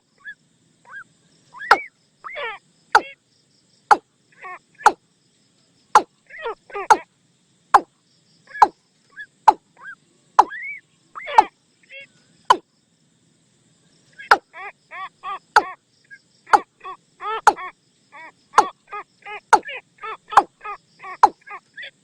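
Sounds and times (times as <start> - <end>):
bird call of short repeated notes: 0.2 - 3.2, 3.9 - 5.0, 5.9 - 7.1, 8.5 - 12.6, 14.2 - 14.6, 15.4 - 21.6.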